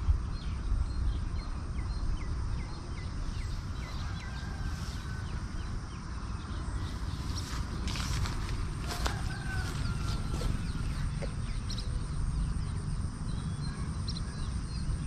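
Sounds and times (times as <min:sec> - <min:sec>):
outdoor rumble: 0:01.1 - 0:15.0.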